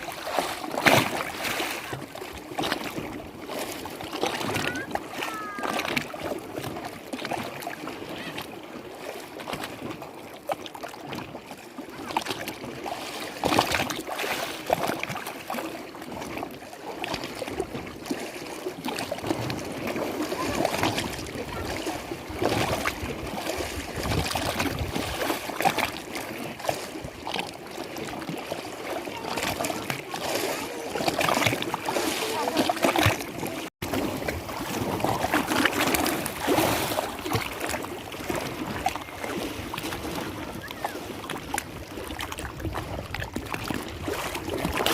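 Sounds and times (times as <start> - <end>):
lake water lapping: 0.0 - 44.9
small water splashes: 0.0 - 44.9.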